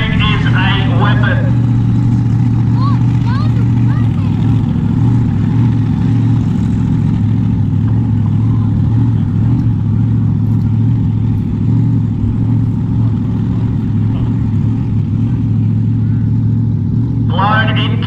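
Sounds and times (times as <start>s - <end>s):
deep engine idling: 0.0s - 18.0s.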